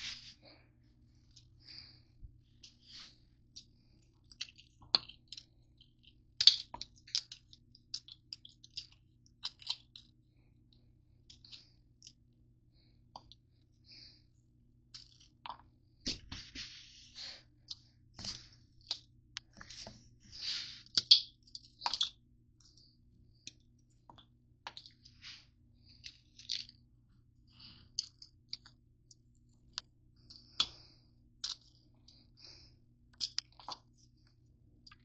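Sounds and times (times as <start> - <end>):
faint low hum: 0.0 - 35.0
granola bars crinkling and crunching: 3.6 - 10.2, 14.9 - 15.6, 25.8 - 26.8, 27.6 - 34.2.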